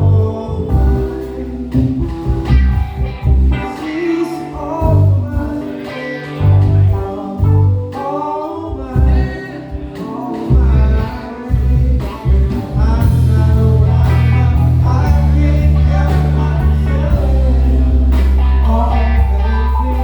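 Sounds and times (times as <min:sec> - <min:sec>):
electric bass: 0:00.0 - 0:20.0
soul band playing: 0:00.0 - 0:20.0
drums thumping: 0:01.8 - 0:03.7.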